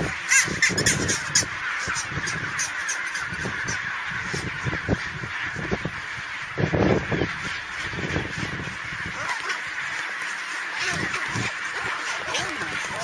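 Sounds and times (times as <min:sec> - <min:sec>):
penguins calling: 0:00.0 - 0:13.0
sharp loud penguin calls: 0:00.0 - 0:13.0.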